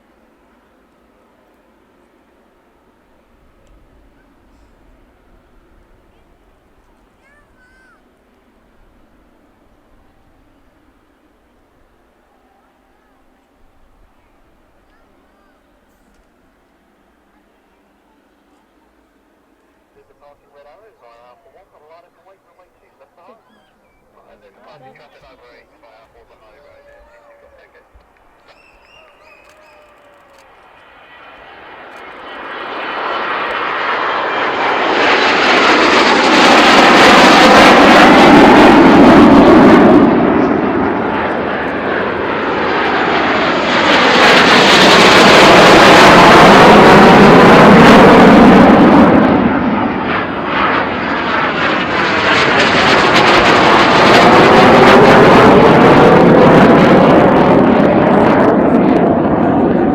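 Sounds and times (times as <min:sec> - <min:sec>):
jets taking off: 0:19.1 - 0:59.9.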